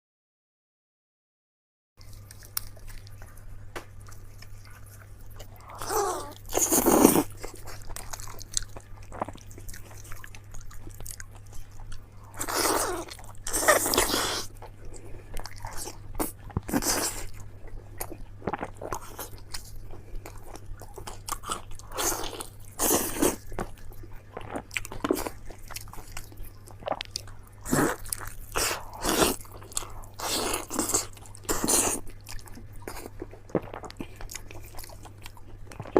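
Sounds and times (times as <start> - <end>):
chewing clicks: 2.0 - 5.8.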